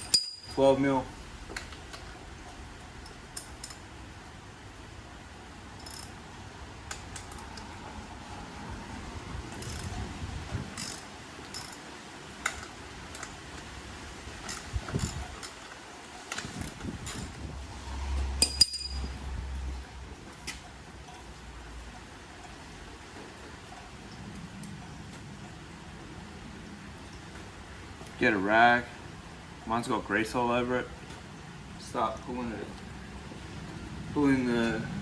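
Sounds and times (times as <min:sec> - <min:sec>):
tool clinking on metal: 0:00.0 - 0:00.8, 0:18.4 - 0:19.2.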